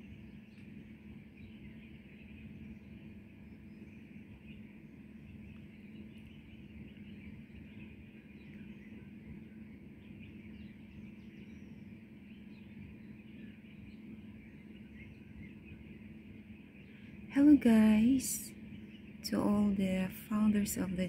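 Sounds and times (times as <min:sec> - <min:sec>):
faint birds chirping: 0:00.0 - 0:21.0.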